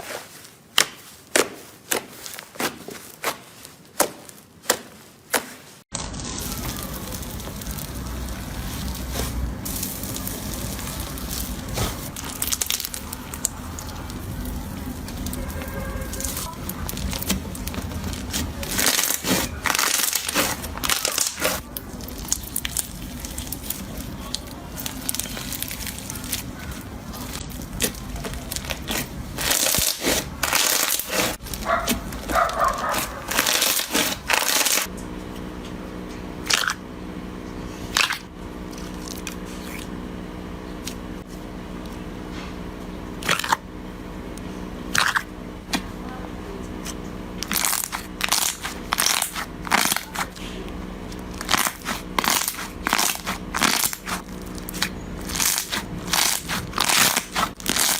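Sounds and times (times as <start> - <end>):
slime crackling and popping: 3.9 - 34.9, 37.9 - 39.9, 44.9 - 45.3, 46.8 - 50.4, 51.0 - 57.9.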